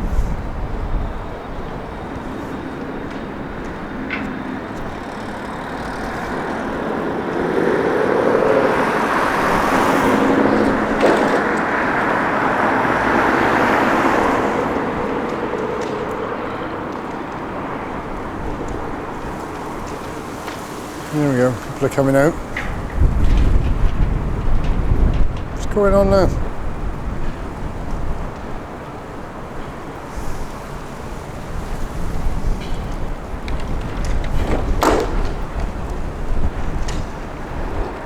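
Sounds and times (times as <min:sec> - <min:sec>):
road traffic: 0:00.0 - 0:38.0
vehicle passing close by: 0:02.2 - 0:25.4.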